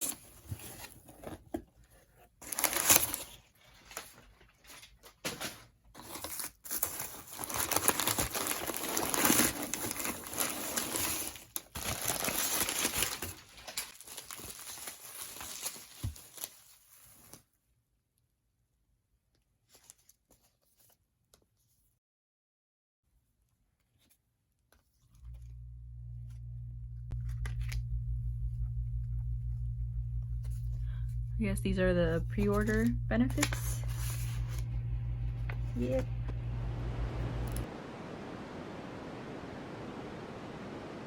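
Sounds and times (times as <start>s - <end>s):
plastic packaging crinkling and tearing: 2.4s - 17.4s.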